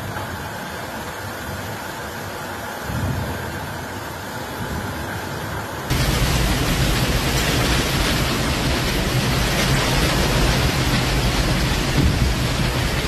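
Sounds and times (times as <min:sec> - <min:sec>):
strong wind: 0:00.0 - 0:13.0
torrential rain hiss: 0:00.0 - 0:13.0
low thunder rumble: 0:05.9 - 0:13.0.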